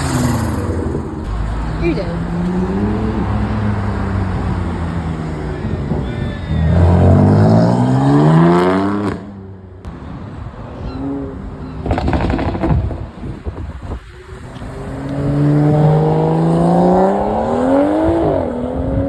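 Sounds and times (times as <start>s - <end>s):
loud rush of noise: 0.0s - 8.6s
car engine accelerating: 0.0s - 10.0s, 10.8s - 19.0s.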